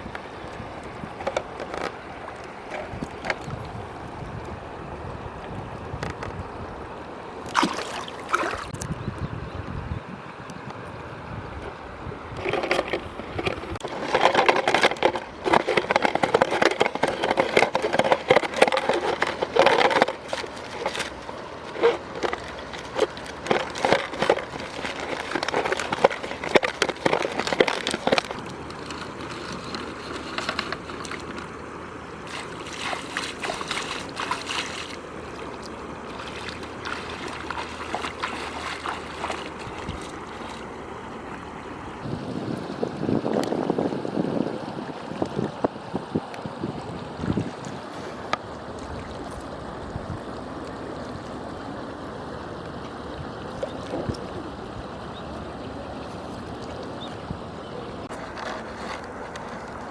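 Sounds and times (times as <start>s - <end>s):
water splashing and sloshing: 0.0s - 9.1s, 11.5s - 59.9s.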